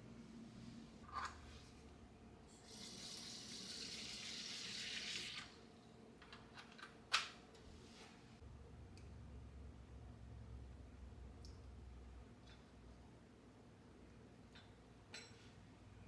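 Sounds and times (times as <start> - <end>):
water running: 2.6 - 5.6.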